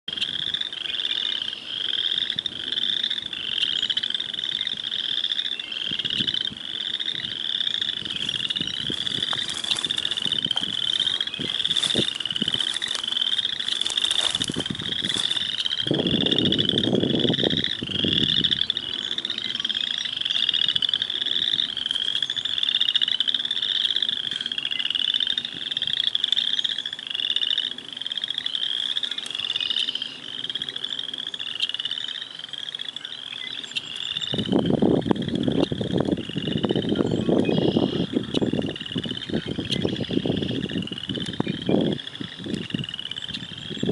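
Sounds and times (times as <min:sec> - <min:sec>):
frog chorus pulsed calls: 0:00.1 - 0:43.9
low rasping frog call: 0:00.1 - 0:43.9.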